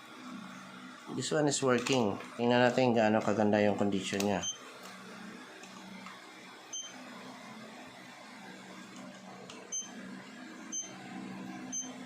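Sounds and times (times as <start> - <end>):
short electronic beeps: 6.8 - 7.0, 9.7 - 9.9, 10.7 - 10.9, 11.7 - 12.0.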